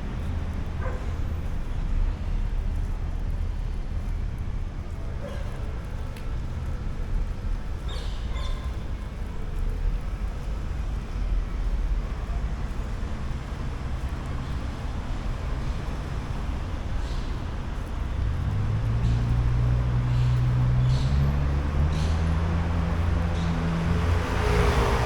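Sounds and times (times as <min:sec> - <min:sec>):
traffic rumble: 0:00.0 - 0:25.0
nearby vehicle engine hum: 0:09.6 - 0:25.0.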